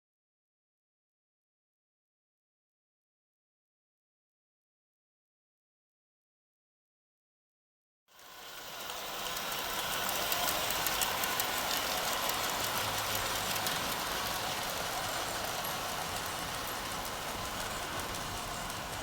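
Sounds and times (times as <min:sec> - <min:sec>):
model train motor hum: 0:08.1 - 0:19.0
wheels clicking on track: 0:08.2 - 0:19.0.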